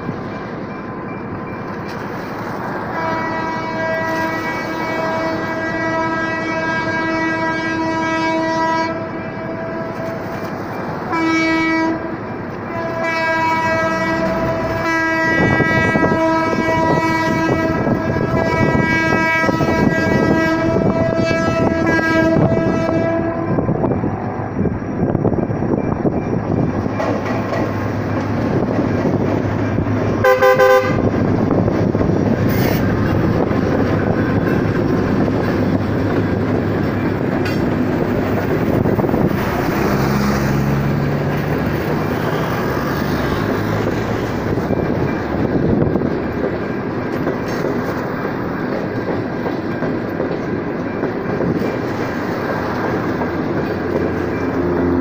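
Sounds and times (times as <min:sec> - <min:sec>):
train rumbling over crossing: 0:00.0 - 0:55.0
locomotive horn blasts: 0:02.8 - 0:10.3, 0:11.1 - 0:23.9, 0:30.2 - 0:31.1
short train horn toot: 0:02.9 - 0:10.2, 0:11.1 - 0:12.1, 0:12.7 - 0:23.6, 0:30.2 - 0:31.1.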